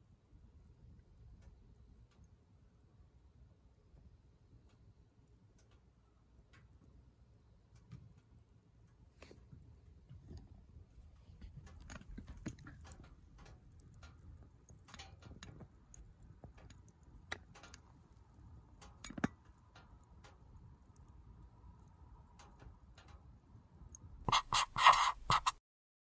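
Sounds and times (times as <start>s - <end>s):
wood fire crackling: 11.6s - 18.8s.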